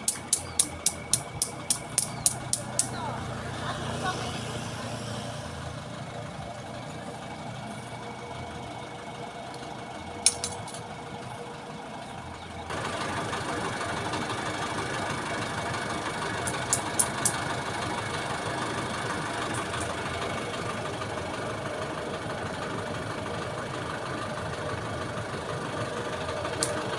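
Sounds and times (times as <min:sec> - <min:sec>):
sharp metallic clicks: 0:00.0 - 0:03.0, 0:10.2 - 0:10.9, 0:16.4 - 0:17.6, 0:26.5 - 0:26.9
engine running: 0:00.0 - 0:26.9.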